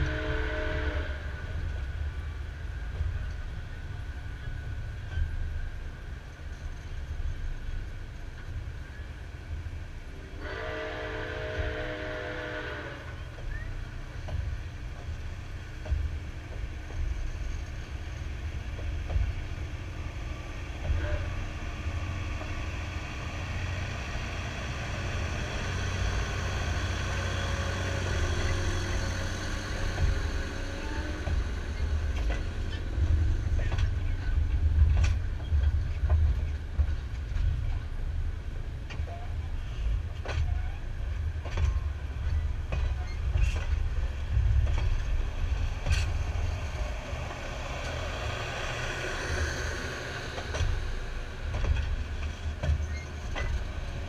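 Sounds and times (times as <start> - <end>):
steam locomotive chime whistle: 0.0 - 1.5, 10.4 - 13.7
train wheels rumbling: 0.0 - 54.0.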